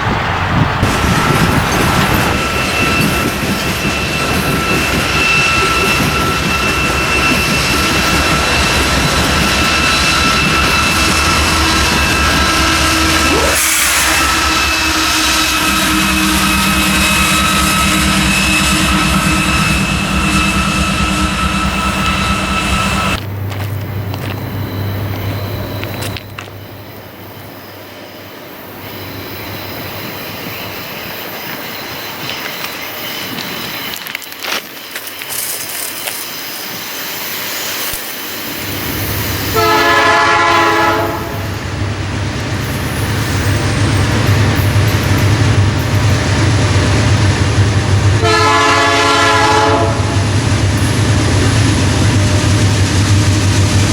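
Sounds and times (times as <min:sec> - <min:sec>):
locomotive engine rumble: 0:00.0 - 0:27.4
turbocharger whine: 0:04.4 - 0:23.3
locomotive horn blast: 0:09.8 - 0:23.2, 0:39.5 - 0:41.6, 0:48.2 - 0:50.4.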